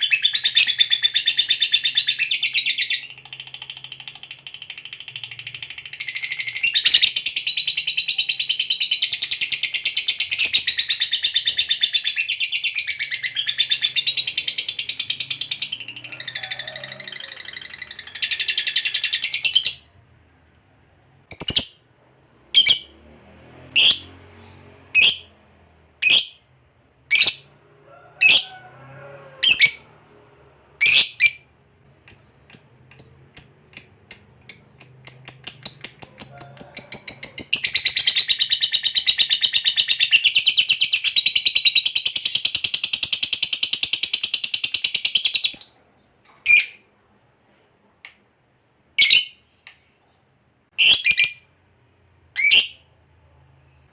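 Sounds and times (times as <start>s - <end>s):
lovebird chirping and trilling: 0.0s - 20.0s, 21.3s - 21.8s, 22.5s - 22.9s, 23.8s - 25.4s, 26.0s - 26.4s, 27.1s - 27.5s, 28.2s - 28.4s, 29.4s - 29.9s, 30.8s - 45.8s, 46.4s - 46.9s, 49.0s - 49.5s, 50.8s - 51.5s, 52.4s - 52.9s.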